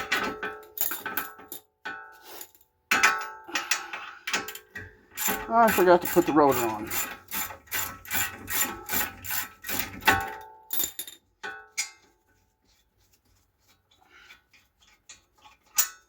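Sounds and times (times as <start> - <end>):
ratchet wrench clicking: 5.2 - 6.2, 6.9 - 10.2.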